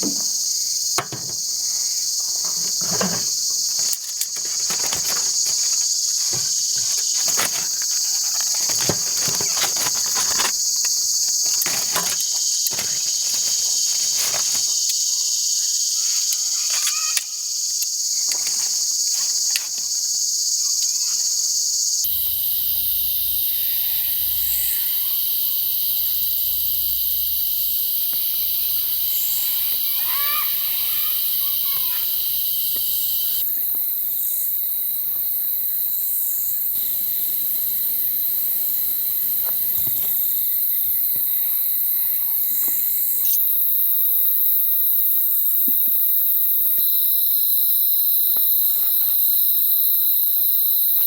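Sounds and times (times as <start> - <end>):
crickets chirring: 0.0 - 51.0
clicks and knocks: 1.0 - 1.4.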